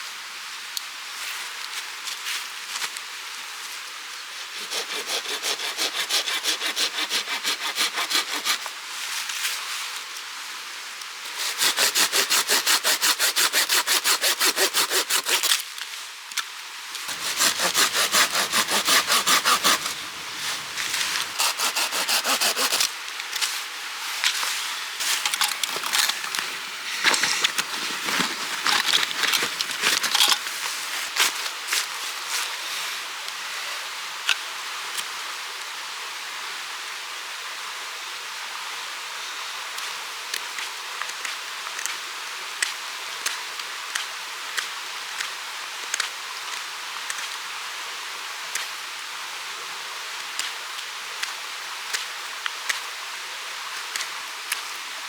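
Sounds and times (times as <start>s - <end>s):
hand saw cutting wood: 4.4s - 8.7s, 11.3s - 15.6s, 17.1s - 23.0s, 27.0s - 30.8s.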